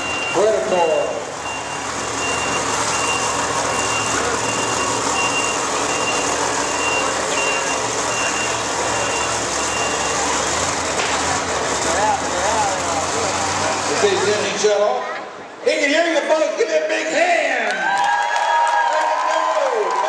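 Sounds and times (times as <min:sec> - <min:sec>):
reversing alarm beeping: 0:00.0 - 0:10.4
engine rumbling: 0:00.0 - 0:15.6.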